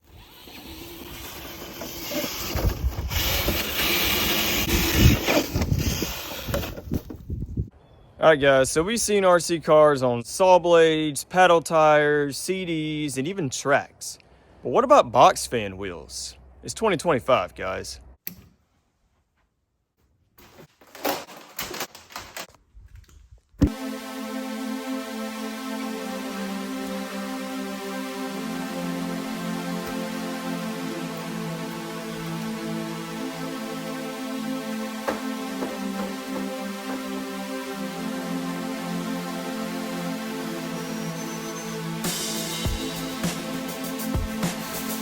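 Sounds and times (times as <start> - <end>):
toy truck electric motor rumble: 0.0 - 7.1
electronic background music: 23.6 - 45.0.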